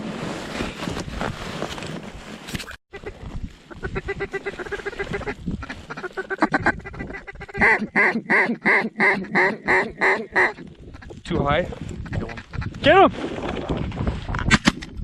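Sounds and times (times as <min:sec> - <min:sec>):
duck call quacking: 0:03.7 - 0:10.6.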